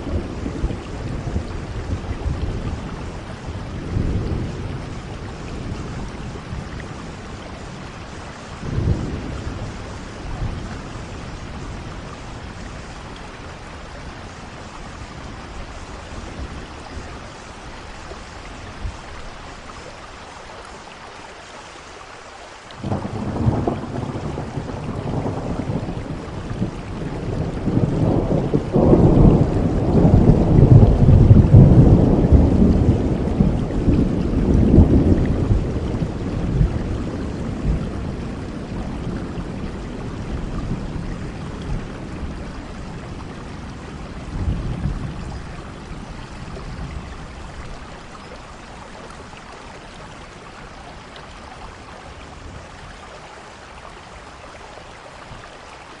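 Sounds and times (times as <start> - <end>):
thunder rumbling: 0.0 - 17.6, 22.8 - 49.4
steady rain falling: 0.0 - 56.0.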